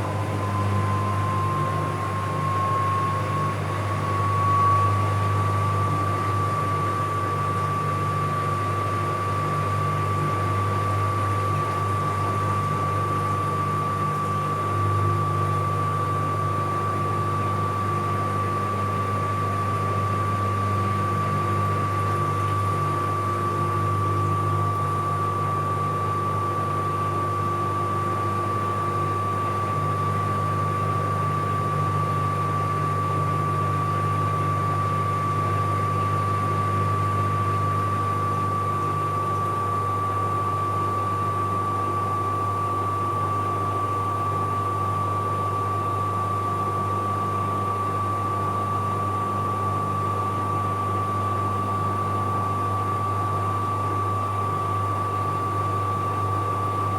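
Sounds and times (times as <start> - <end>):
washing machine spinning: 0.0 - 56.9.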